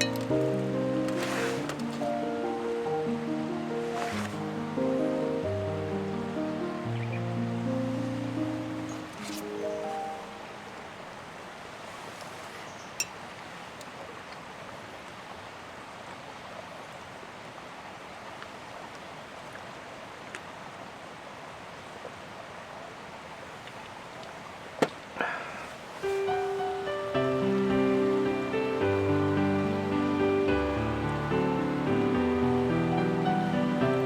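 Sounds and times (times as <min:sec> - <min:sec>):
music: 0:00.0 - 0:10.8, 0:26.1 - 0:34.0
rain falling: 0:00.0 - 0:12.6, 0:17.1 - 0:34.0.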